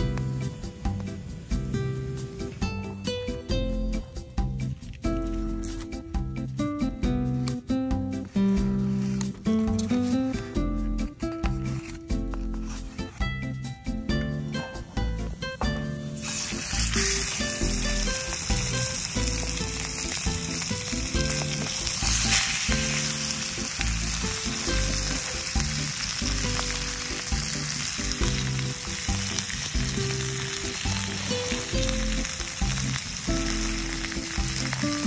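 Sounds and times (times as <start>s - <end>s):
chicken sizzling in frying pan: 0.0s - 6.2s, 8.3s - 10.5s, 15.9s - 35.0s
background music: 0.0s - 35.0s.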